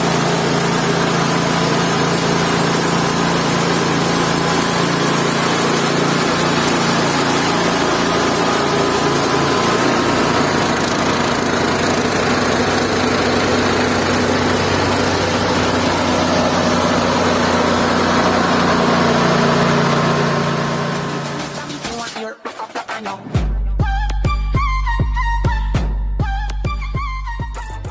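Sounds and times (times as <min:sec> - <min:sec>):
band sawmill motor running: 0:00.0 - 0:22.0.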